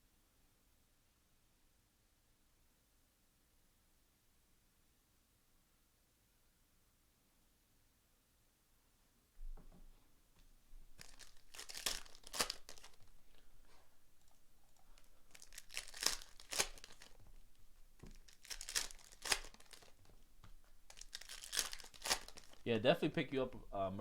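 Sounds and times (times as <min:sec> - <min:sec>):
foil wrappers tearing and crinkling: 0:10.9 - 0:13.4, 0:14.9 - 0:20.2, 0:20.8 - 0:22.7.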